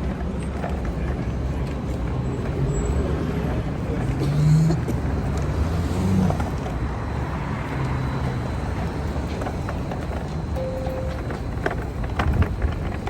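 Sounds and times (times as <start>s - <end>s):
traffic rumble: 0.0s - 13.0s
brief steady tone: 10.6s - 11.8s.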